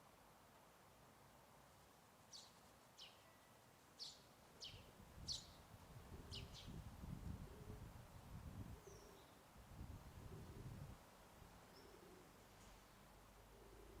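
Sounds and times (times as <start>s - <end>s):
songbird chirping: 2.2s - 7.4s, 8.8s - 9.5s, 11.4s - 14.0s.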